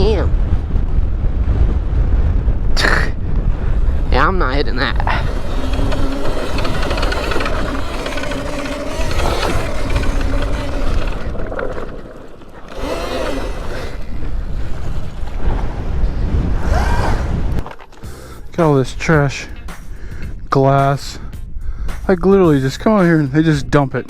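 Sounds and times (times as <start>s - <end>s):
wind rumble on microphone: 0.0s - 17.7s
electric motor whine: 4.8s - 18.0s.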